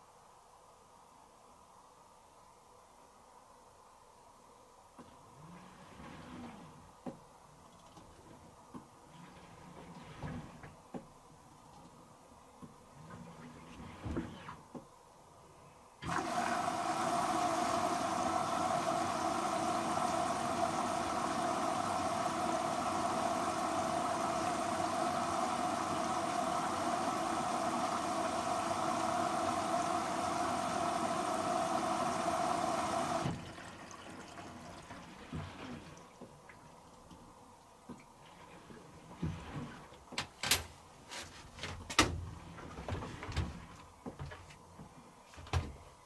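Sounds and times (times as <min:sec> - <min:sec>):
water rushing into washer drum: 0:09.0 - 0:11.1, 0:16.0 - 0:37.2, 0:37.8 - 0:40.2.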